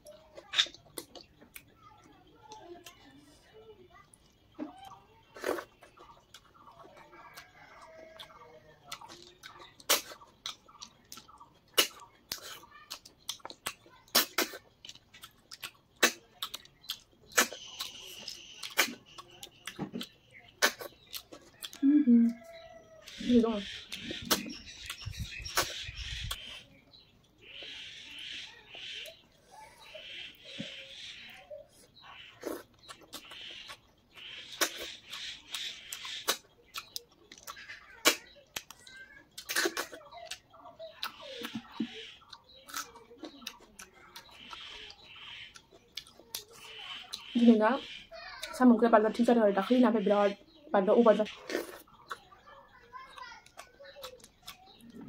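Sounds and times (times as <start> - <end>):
chewing and mouth smacks: 0.0 - 1.8, 4.0 - 23.2, 23.8 - 26.6, 32.0 - 47.3, 51.3 - 55.0.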